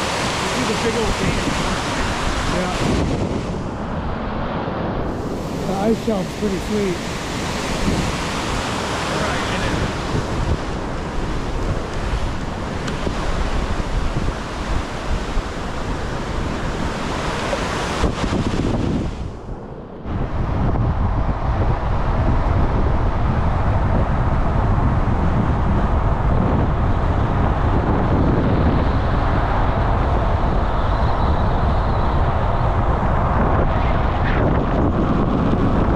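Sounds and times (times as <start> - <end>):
river rushing: 0.0 - 20.2
wind on microphone: 0.0 - 35.9.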